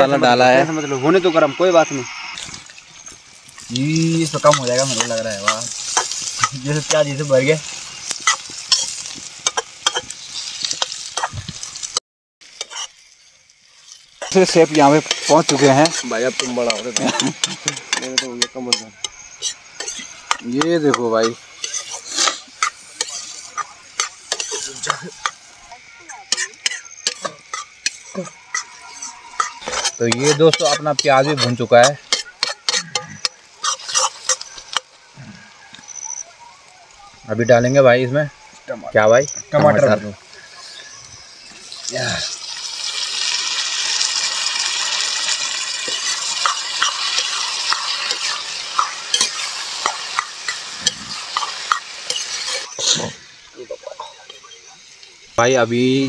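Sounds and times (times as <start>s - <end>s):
onions sizzling in oil: 0.0s - 56.0s
ladle scraping a pan: 12.6s - 13.0s, 13.8s - 25.4s, 26.3s - 34.9s, 45.8s - 53.2s.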